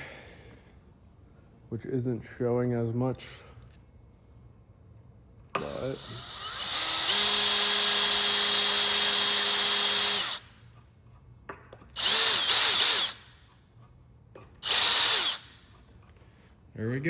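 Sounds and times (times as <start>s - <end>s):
rotary tool cutting: 5.6s - 10.5s, 12.0s - 13.3s, 14.6s - 15.6s.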